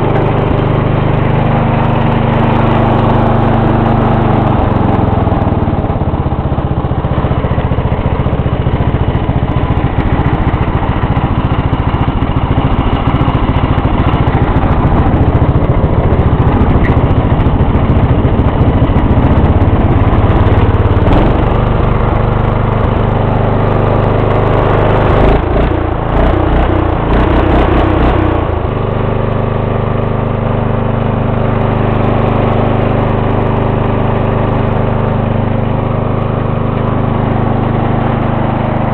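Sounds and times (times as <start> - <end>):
riding mower engine running: 0.0 - 38.9.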